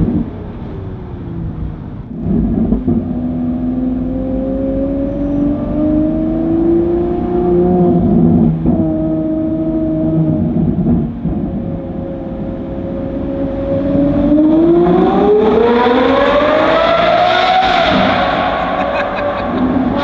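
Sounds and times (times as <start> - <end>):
sports car engine revving: 0.2 - 20.0.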